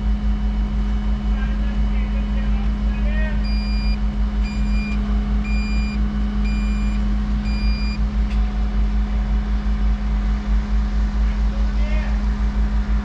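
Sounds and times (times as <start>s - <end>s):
excavator diesel engine running: 0.0s - 13.0s
reversing alarm beeping: 3.4s - 8.0s.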